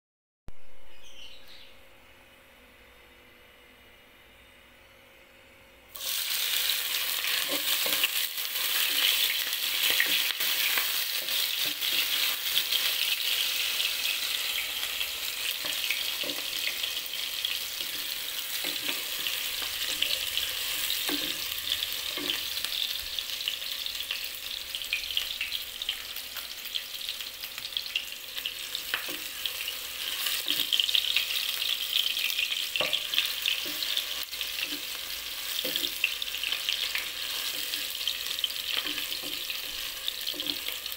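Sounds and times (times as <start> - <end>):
garlic sizzling in hot oil: 5.9 - 40.9
spatula tapping and scraping pot: 22.1 - 22.5, 35.6 - 36.2.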